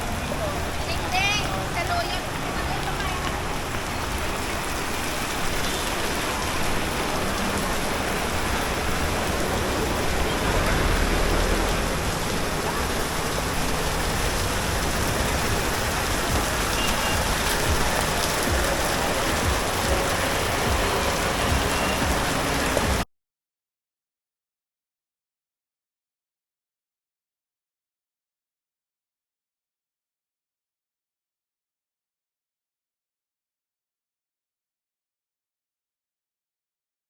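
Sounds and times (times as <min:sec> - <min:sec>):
rain falling on street: 0:00.0 - 0:23.1.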